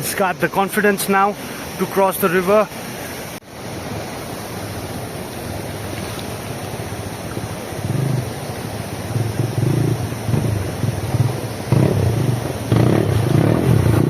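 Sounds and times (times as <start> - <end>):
river water rushing: 0.0 - 14.0
motorcycle engine: 7.6 - 14.0.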